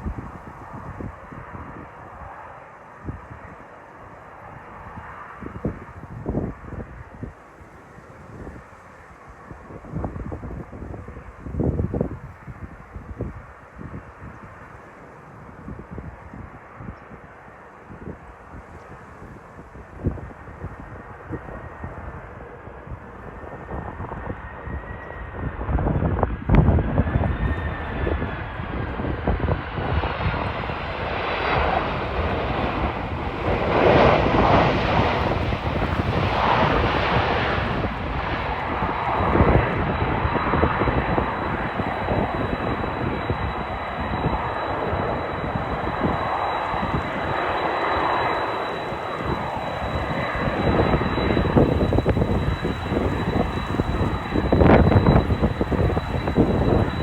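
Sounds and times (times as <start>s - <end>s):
wind rumbling on microphone: 0.0s - 57.0s
jet engines whining: 19.8s - 57.0s.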